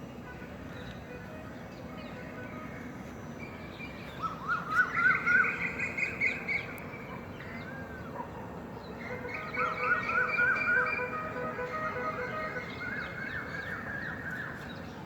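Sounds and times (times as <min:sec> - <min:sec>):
outdoor background noise: 0:00.0 - 0:15.0
birds singing: 0:00.1 - 0:15.0
whistled bird notes: 0:09.0 - 0:14.9.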